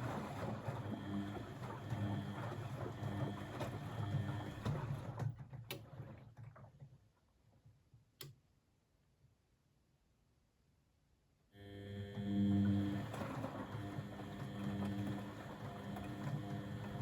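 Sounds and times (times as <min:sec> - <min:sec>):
low motor hum: 0:11.6 - 0:17.0.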